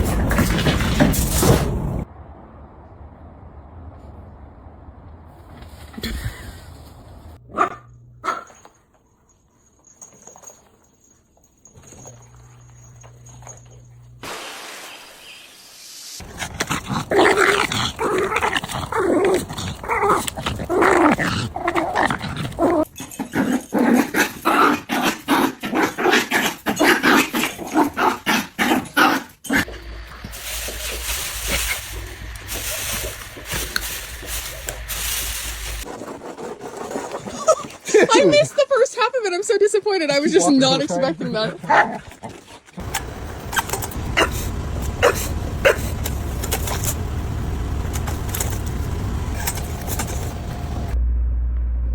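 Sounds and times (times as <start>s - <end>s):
dog barking and whining: 42.9s - 46.7s.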